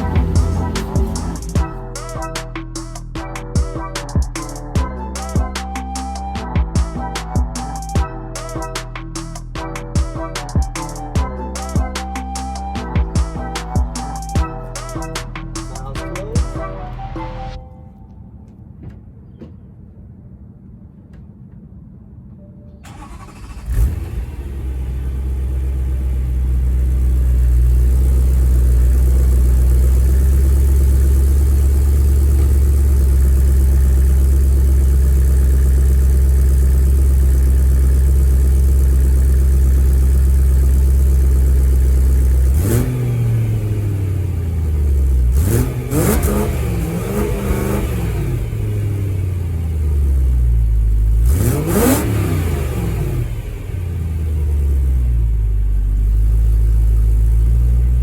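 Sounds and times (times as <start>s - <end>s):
car engine idling and revving: 0.0s - 5.5s, 20.4s - 58.0s.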